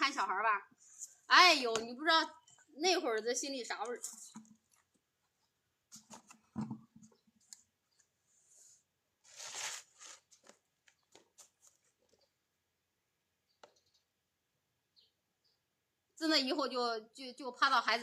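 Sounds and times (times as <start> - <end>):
faint clicks and rustles: 9.2 - 12.4.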